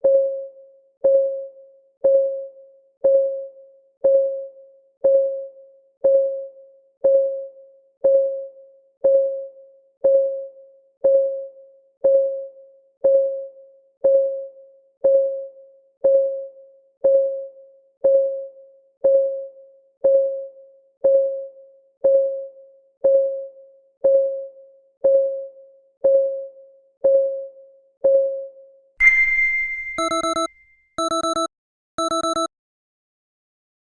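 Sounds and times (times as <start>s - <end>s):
alarm ringing chime: 29.0s - 32.5s
electronic beeps: 29.0s - 32.5s
timer clock ticking: 29.0s - 32.5s.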